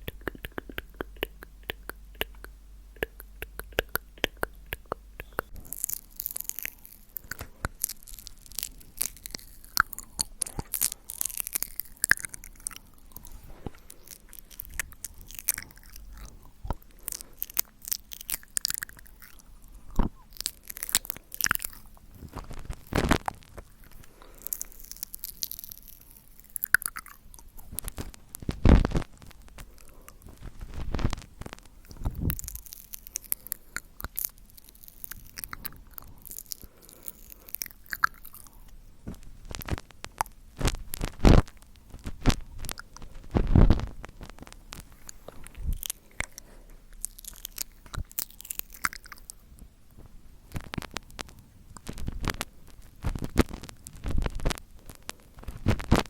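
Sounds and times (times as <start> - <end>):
wet mouth clicks and lip smacks: 0.0 - 30.2, 44.5 - 49.4.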